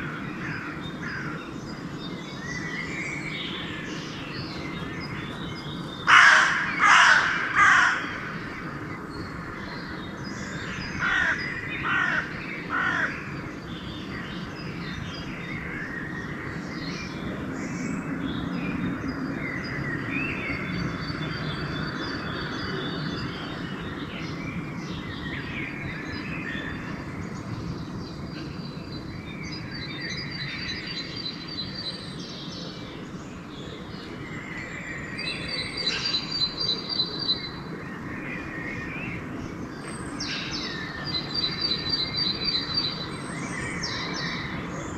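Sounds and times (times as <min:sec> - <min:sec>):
songbirds chirping and trilling: 0:00.0 - 0:44.9
crow cawing: 0:06.1 - 0:08.2, 0:11.0 - 0:13.2.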